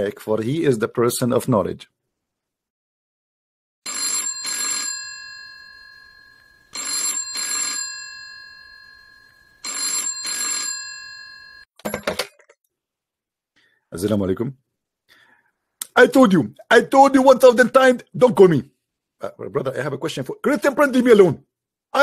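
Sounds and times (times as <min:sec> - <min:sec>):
telephone ringing: 0:03.8 - 0:12.3.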